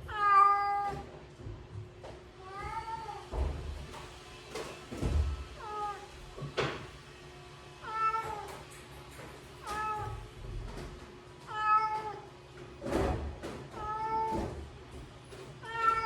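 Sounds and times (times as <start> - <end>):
cat meowing: 0.0 - 1.0, 2.4 - 3.3, 7.8 - 8.6, 9.6 - 10.3, 11.5 - 12.3, 13.8 - 14.4, 15.6 - 16.0.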